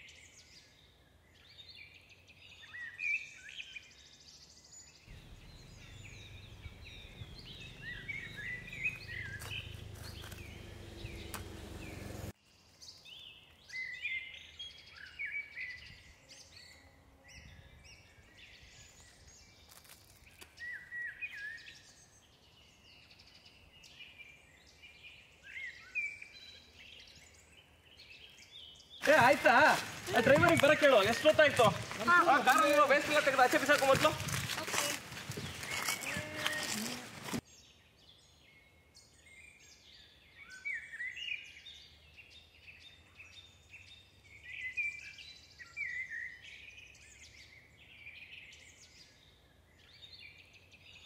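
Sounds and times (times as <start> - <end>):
birds chirping: 0.0 - 51.0
low rumble: 5.1 - 12.3.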